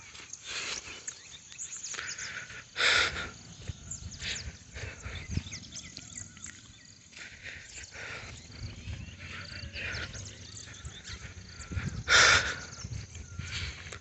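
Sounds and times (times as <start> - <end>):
birds chirping: 0.0 - 14.0
loud harsh bird cry: 1.9 - 14.0
wind rumble on microphone: 3.0 - 14.0.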